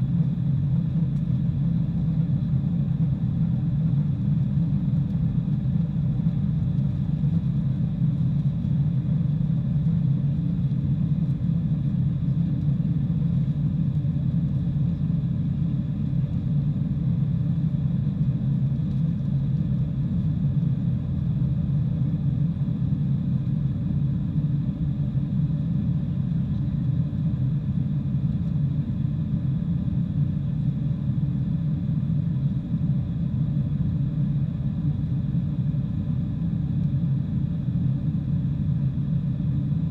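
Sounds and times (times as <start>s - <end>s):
airliner engine rumble: 0.0s - 39.9s
faint steady whining tones: 0.0s - 39.9s.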